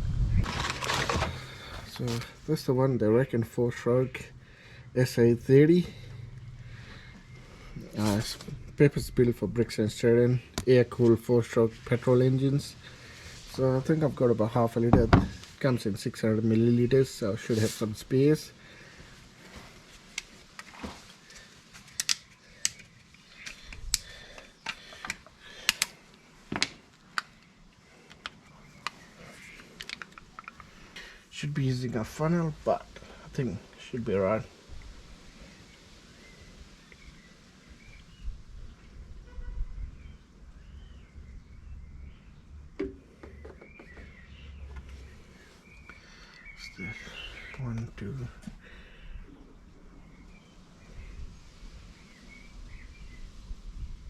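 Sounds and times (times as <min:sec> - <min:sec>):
birds chirping: 0:00.6 - 0:20.4, 0:21.0 - 0:53.5.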